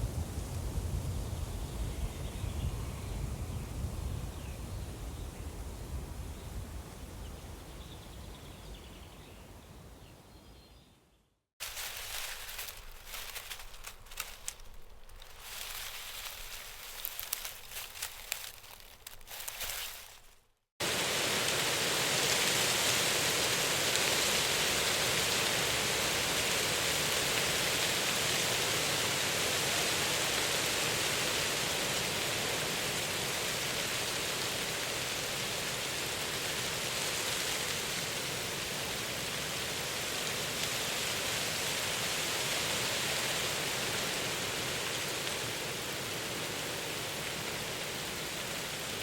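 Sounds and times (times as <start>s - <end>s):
water rushing: 20.8s - 27.8s.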